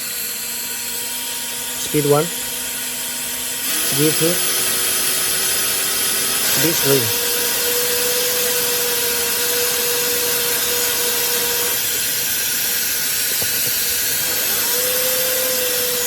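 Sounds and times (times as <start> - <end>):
high-pitched motor whine: 0.0 - 16.0
hair dryer air rush: 3.5 - 16.0.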